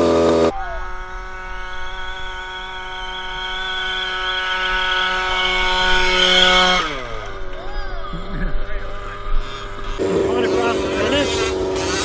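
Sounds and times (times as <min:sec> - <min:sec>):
small gas engine running: 0:00.0 - 0:12.0.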